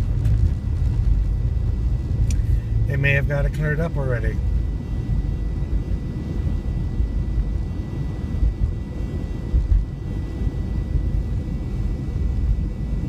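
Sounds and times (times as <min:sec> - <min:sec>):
car road noise inside cabin: 0:00.0 - 0:07.4
faint high whine: 0:00.0 - 0:13.0.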